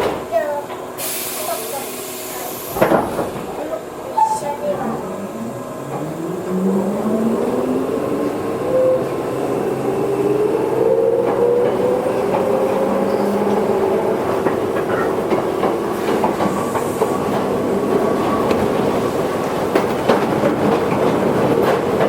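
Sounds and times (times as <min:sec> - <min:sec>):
electric train motor hum: 0:04.8 - 0:18.7
wheels clacking over rail joints: 0:11.0 - 0:22.0.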